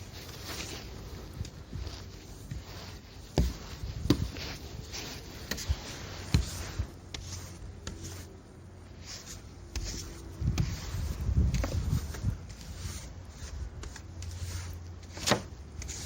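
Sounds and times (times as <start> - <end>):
knocks and snow scraping: 0.0 - 16.0.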